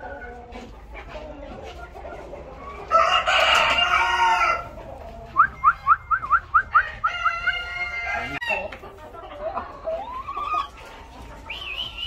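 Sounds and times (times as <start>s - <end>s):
rooster crowing: 2.9s - 4.7s, 6.6s - 8.6s.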